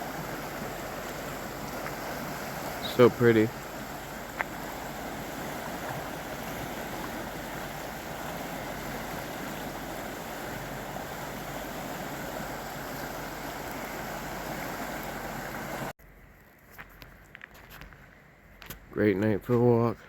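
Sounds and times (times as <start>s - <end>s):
river water rushing: 0.0s - 15.9s.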